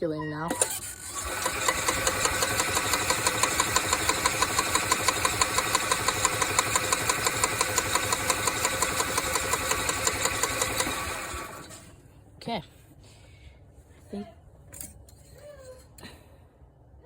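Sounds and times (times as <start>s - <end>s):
engine cranked by starter: 0.5s - 12.0s.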